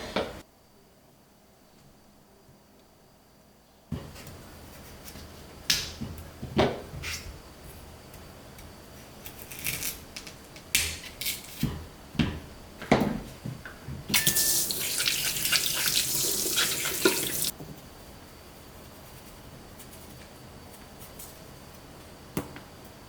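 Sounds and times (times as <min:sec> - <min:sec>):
water tap running: 0:14.1 - 0:17.5.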